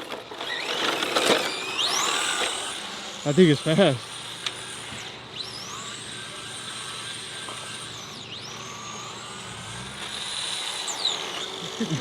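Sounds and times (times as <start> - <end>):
high-pitched sliding whines: 0.0 - 12.0
vehicle rumble: 4.1 - 12.0.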